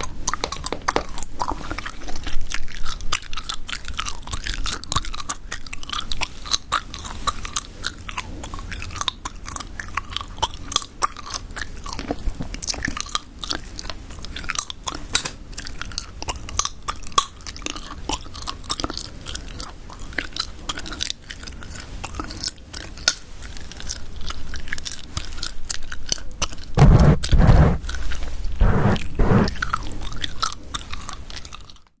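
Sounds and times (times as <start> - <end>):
deep thumps: 26.8 - 28.0, 28.6 - 29.6.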